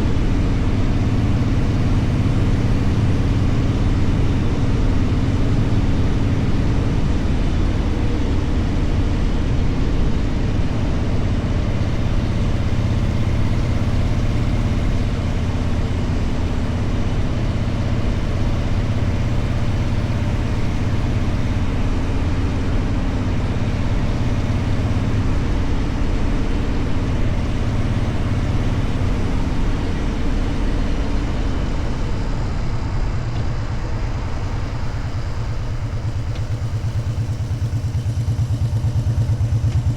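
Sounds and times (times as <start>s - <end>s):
motorcycle engine rumble: 0.0s - 39.9s
road and air noise: 0.0s - 39.9s.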